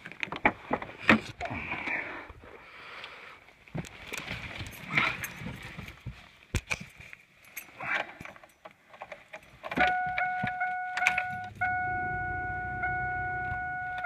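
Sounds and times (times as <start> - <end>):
high electronic tone: 9.9 - 14.0
low hum: 10.0 - 14.0.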